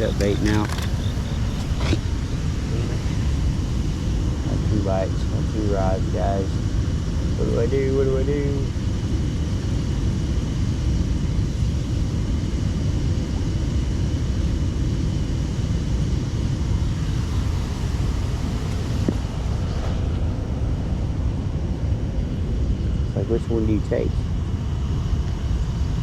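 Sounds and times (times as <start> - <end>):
loud low rumbling noise: 0.0 - 26.0.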